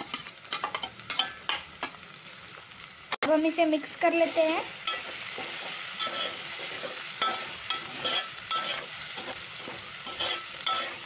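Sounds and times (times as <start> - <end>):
food sizzling in oil: 0.0 - 11.0
metal spoon scraping pot: 4.9 - 11.0.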